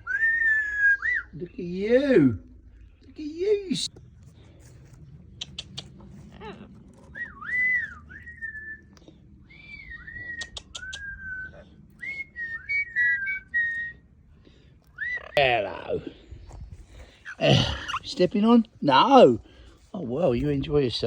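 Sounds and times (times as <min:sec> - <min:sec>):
parrot whistling: 0:00.0 - 0:01.4, 0:07.2 - 0:08.8, 0:09.5 - 0:14.0, 0:15.0 - 0:15.4
sharp clicks: 0:05.4 - 0:06.0, 0:10.3 - 0:11.1.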